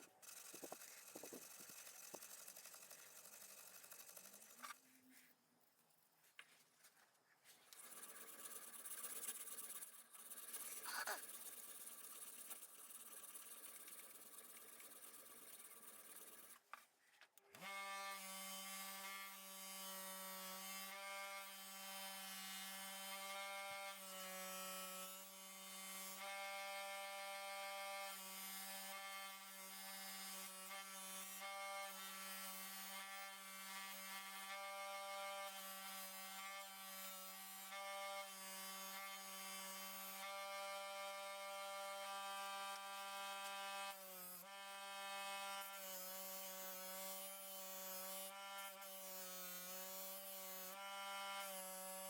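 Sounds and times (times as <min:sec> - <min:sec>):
power tool motor humming: 0:00.0 - 0:04.8, 0:17.6 - 0:52.0.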